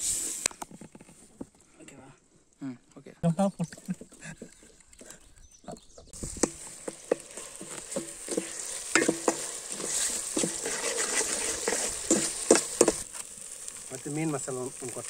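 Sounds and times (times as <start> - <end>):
spatula scraping metal pot: 3.7 - 5.3, 6.2 - 13.2
onions sizzling in oil: 6.1 - 15.0.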